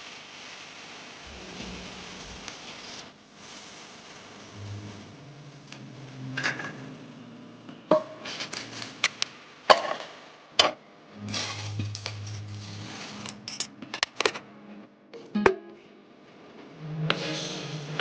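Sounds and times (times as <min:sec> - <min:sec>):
low hum: 0:01.2 - 0:03.2, 0:04.4 - 0:07.9, 0:11.1 - 0:14.8.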